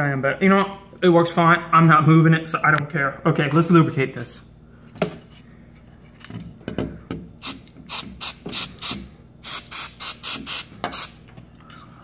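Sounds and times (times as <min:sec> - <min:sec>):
aerosol spray hissing bursts: 0:07.4 - 0:11.2.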